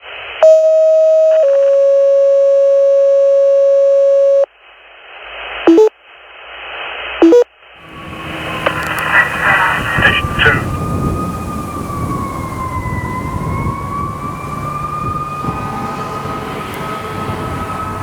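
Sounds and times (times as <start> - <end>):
two-tone radio alert: 7.2 - 10.9
radio hiss: 7.8 - 10.8
short radio chirps: 8.0 - 10.7.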